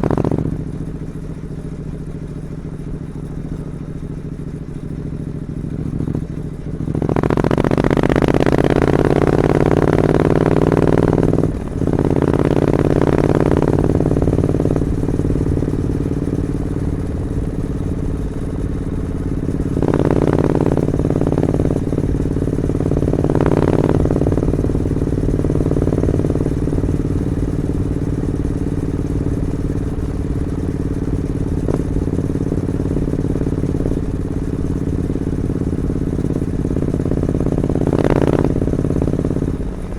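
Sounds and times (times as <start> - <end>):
motorcycle engine revving and idling: 0.0 - 39.9.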